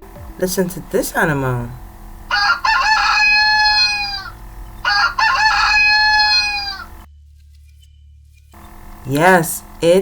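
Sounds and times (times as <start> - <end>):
rooster crowing: 2.2 - 7.1.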